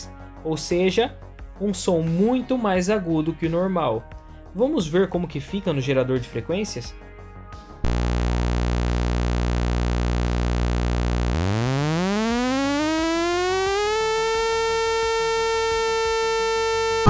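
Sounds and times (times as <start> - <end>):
synthetic buzzing tone gliding up: 7.9 - 17.0.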